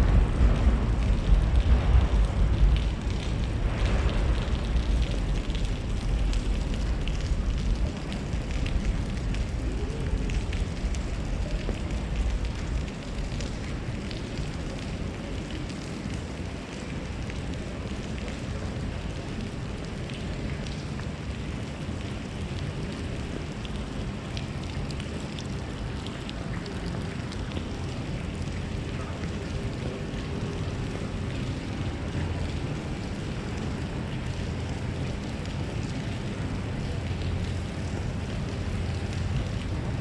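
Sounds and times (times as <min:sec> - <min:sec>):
heavy low rumble: 0:00.0 - 0:14.9
outdoor city noise: 0:00.0 - 0:40.0.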